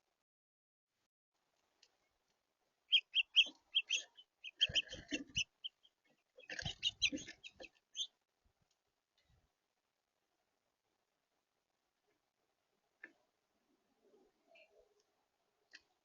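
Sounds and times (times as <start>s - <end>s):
small birds chirping: 1.8s - 8.2s, 14.0s - 16.0s
knocks and scrapes at feeder: 3.4s - 7.8s.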